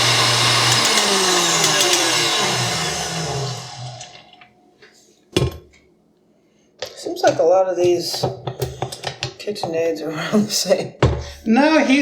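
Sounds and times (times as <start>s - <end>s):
stand mixer motor whine: 0.0s - 4.4s.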